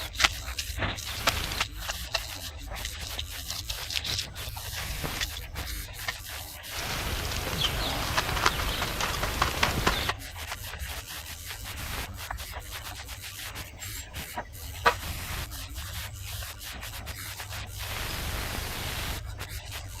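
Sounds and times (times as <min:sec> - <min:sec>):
low steady hum: 0:06.7 - 0:10.1, 0:17.8 - 0:19.4.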